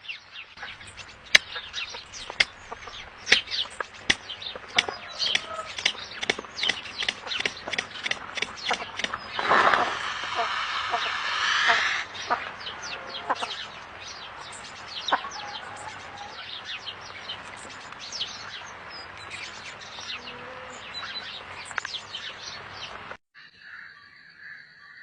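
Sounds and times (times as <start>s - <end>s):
small birds chirping: 0.0s - 25.0s
drawn-out bird call: 0.6s - 23.1s.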